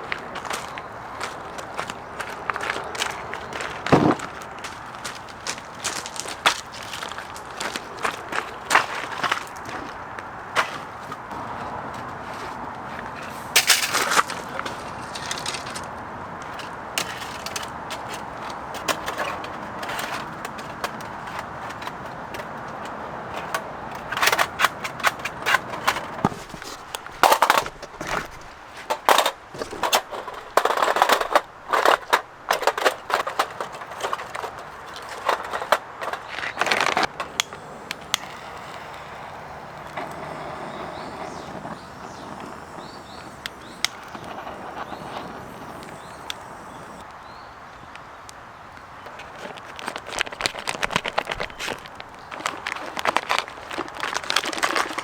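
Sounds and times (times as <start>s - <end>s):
camping gear clattering: 0.0s - 47.0s, 49.1s - 55.0s
steady background hiss: 26.1s - 48.5s.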